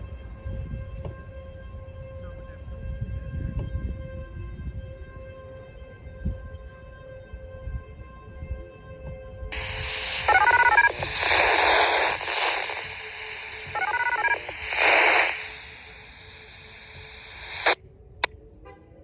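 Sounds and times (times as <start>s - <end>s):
radio hiss: 9.5s - 17.8s
burst of static: 9.6s - 17.8s
stepping beeping tones: 9.6s - 17.8s.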